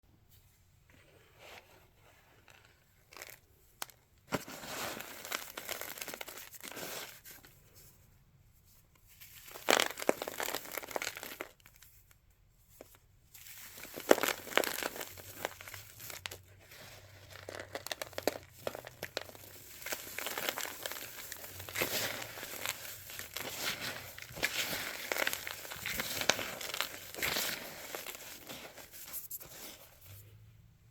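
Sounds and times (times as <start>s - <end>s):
powder crunching: 9.4s - 11.8s, 13.4s - 30.2s.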